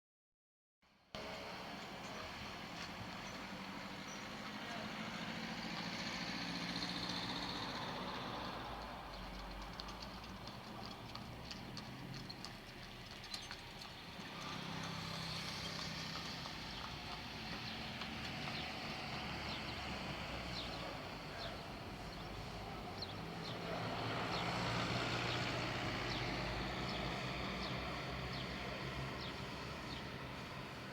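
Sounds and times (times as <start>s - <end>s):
traffic noise: 1.2s - 30.9s
vehicles passing: 1.2s - 30.9s.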